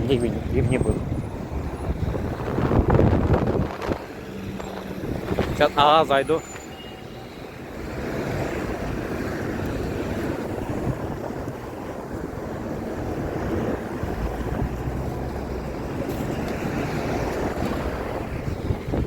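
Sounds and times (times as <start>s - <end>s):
wind buffeting microphone: 0.0s - 6.6s, 7.3s - 19.0s.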